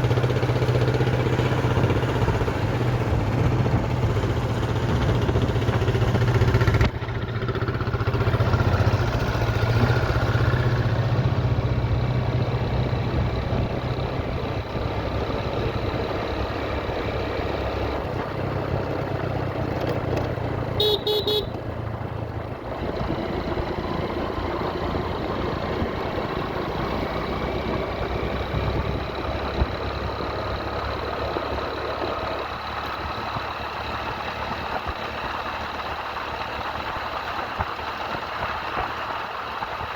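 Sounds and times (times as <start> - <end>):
motorcycle engine running: 0.0 - 39.9
road and wind noise: 0.0 - 39.9
horn beeps: 20.8 - 21.6.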